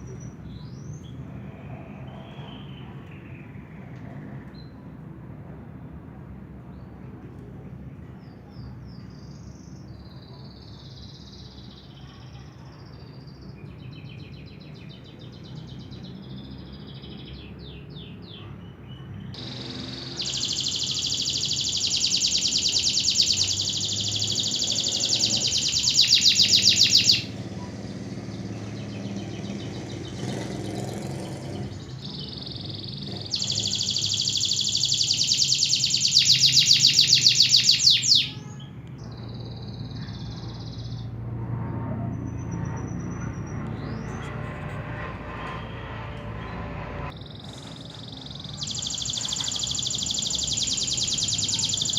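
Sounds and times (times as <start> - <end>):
canary singing trills: 9.4 - 41.2, 42.3 - 51.9
steady low hum: 41.0 - 47.2.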